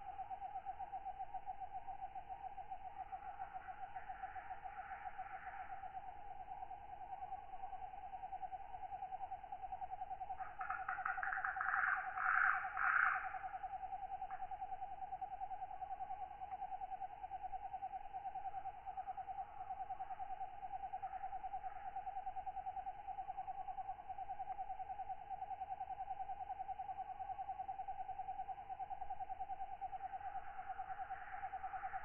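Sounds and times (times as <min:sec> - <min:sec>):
faint night sounds: 0:00.0 - 0:32.0.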